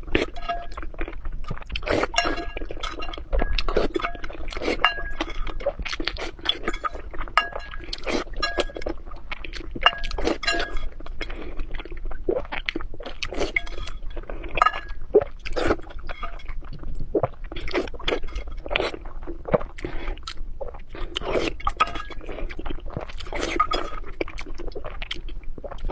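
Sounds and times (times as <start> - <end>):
clinks against a hard dish: 2.1 - 5.4, 6.6 - 8.9, 9.8 - 10.9, 14.6 - 15.0.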